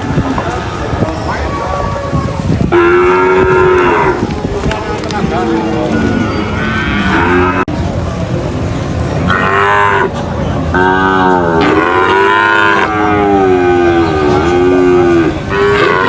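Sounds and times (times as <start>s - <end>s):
cow mooing: 2.7s - 4.3s, 5.8s - 7.7s, 10.8s - 16.0s.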